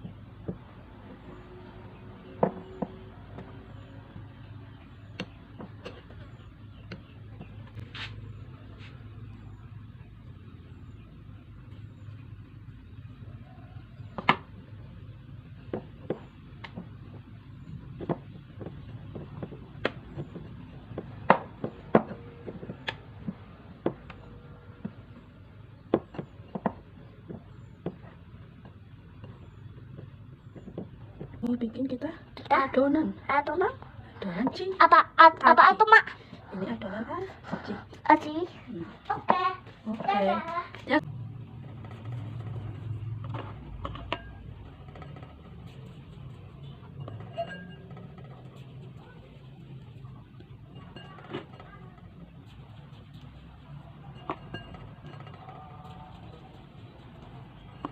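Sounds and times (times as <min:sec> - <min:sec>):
low steady hum: 0:00.0 - 0:57.9
kitchen utensils clinking: 0:46.3 - 0:49.1, 0:53.1 - 0:56.6.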